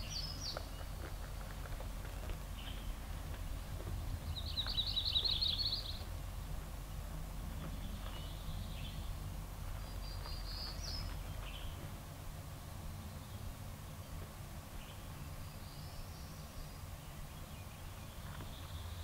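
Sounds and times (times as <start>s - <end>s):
songbirds trilling and calling: 0.0s - 6.1s, 6.8s - 12.0s, 13.0s - 19.0s
low background rumble: 0.0s - 19.0s.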